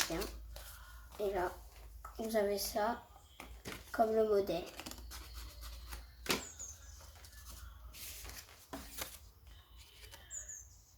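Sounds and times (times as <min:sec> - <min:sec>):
paper rustling: 0:00.0 - 0:02.5, 0:03.6 - 0:10.4.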